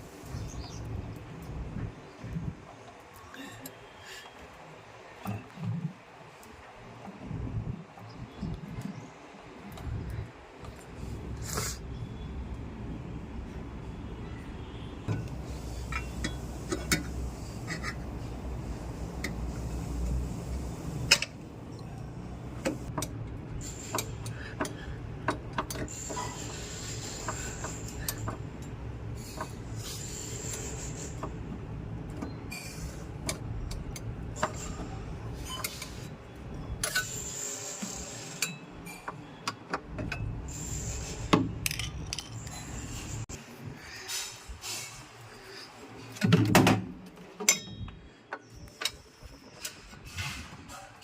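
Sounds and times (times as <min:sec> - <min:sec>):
hand tools and metal parts clinking: 0:32.1 - 0:40.4, 0:41.0 - 0:43.2, 0:47.1 - 0:50.2.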